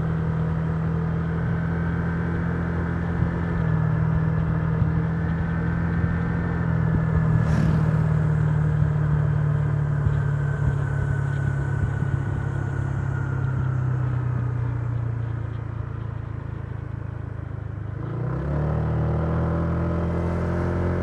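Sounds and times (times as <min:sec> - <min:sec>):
road and wind noise: 0:00.0 - 0:21.0
brief rushing noise: 0:07.3 - 0:08.9.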